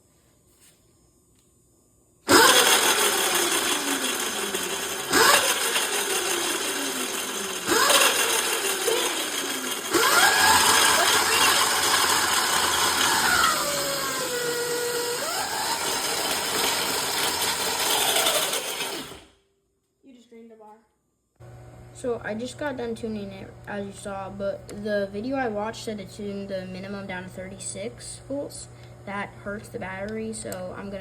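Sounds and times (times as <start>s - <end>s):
electric motor whine: 2.3s - 19.4s.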